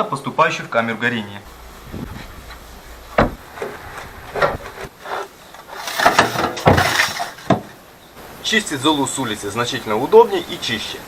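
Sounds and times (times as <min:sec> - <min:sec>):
ash drawer scraping: 0:01.5 - 0:07.8
drawer knock: 0:03.2 - 0:03.4.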